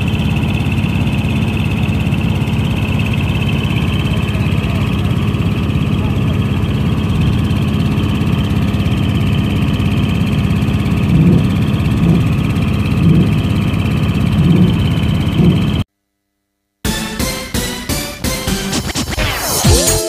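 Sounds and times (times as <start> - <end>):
truck diesel engine idling: 0.0 - 15.8.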